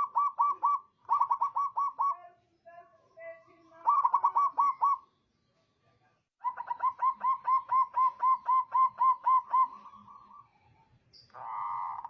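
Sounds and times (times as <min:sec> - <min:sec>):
dove cooing: 0:00.0 - 0:02.2, 0:03.8 - 0:05.0, 0:06.4 - 0:10.5, 0:11.3 - 0:12.0.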